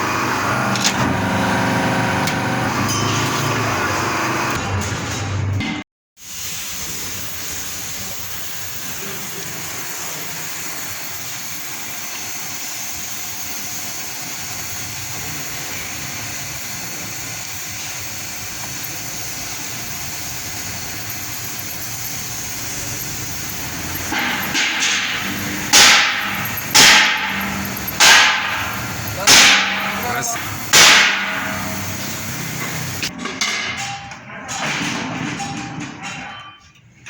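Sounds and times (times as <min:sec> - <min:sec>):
metal lathe running: 0:00.0 - 0:04.6, 0:14.2 - 0:33.1.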